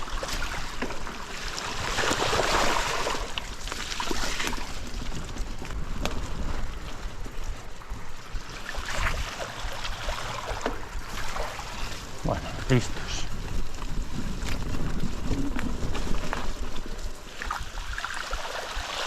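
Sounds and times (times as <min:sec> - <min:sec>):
wind buffeting microphone: 0:00.0 - 0:19.0
rushing water: 0:17.4 - 0:19.0.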